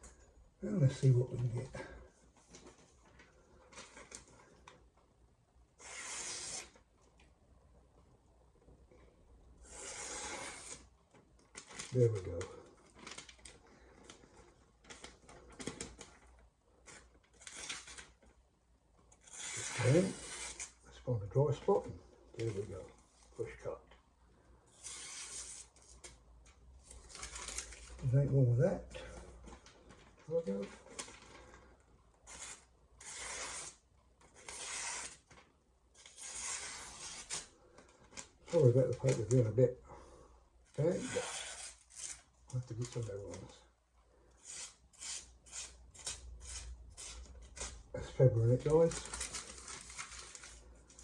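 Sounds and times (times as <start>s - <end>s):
knife slicing paper: 5.8s - 6.8s, 9.6s - 10.9s, 24.8s - 25.7s, 32.3s - 33.8s, 34.4s - 35.2s, 36.0s - 37.5s, 44.4s - 47.8s
knife slicing through paper: 34.4s - 35.2s.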